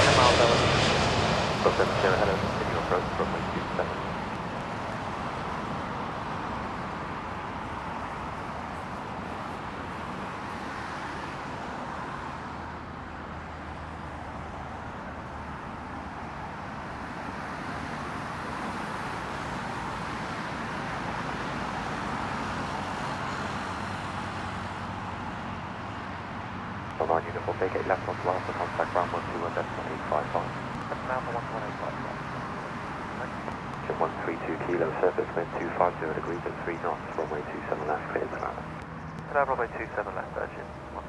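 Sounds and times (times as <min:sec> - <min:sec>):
faint low drone: 0:00.0 - 0:04.8, 0:27.0 - 0:41.0
engine and traffic rumble: 0:00.0 - 0:41.0.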